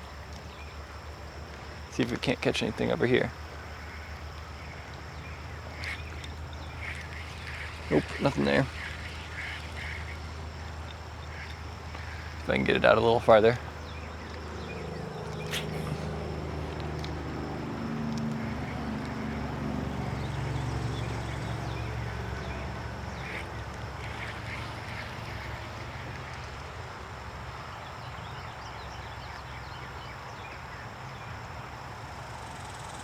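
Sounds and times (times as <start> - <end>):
creek water rushing: 0.0 - 28.2
passing engine drone: 6.6 - 26.0.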